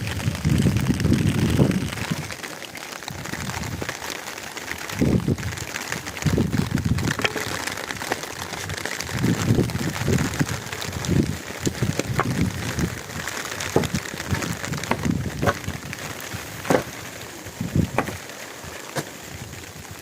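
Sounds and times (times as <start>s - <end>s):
steady rain falling: 0.0s - 20.0s
low rumbles: 5.0s - 19.8s.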